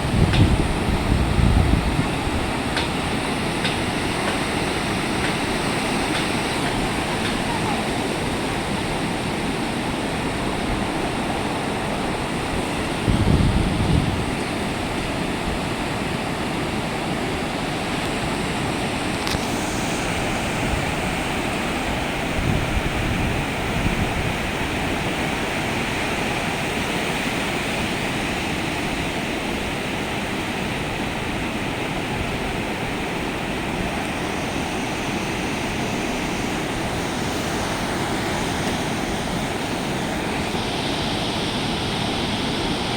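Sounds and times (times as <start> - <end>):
wind buffeting microphone: 0.0 - 16.4, 18.2 - 26.7
sea surf breaking: 0.0 - 42.9.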